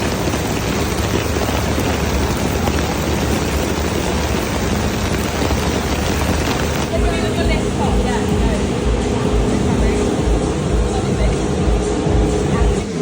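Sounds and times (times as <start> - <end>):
rain falling: 0.0 - 10.3
low rumble: 0.0 - 13.0.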